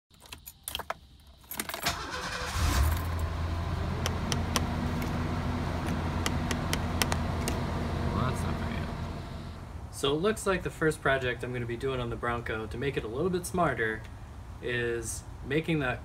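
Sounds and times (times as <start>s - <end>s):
keys jangling in ignition: 0.1s - 3.3s
car engine starting and idling: 1.4s - 10.0s.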